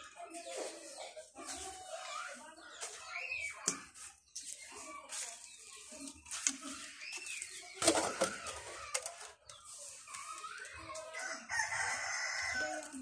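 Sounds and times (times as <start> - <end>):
rooster crowing: 11.2 - 13.0.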